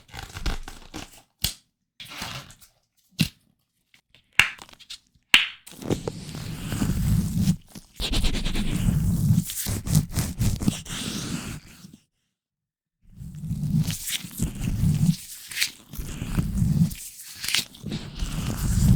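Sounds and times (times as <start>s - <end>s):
rubbing on microphone: 5.9s - 11.8s.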